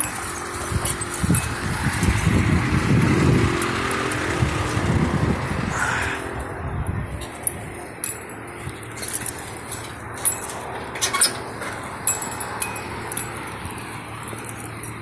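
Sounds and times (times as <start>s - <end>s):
light clicks and clinks: 0.0s - 2.4s, 7.2s - 15.0s
vehicle engine rumble: 0.0s - 15.0s.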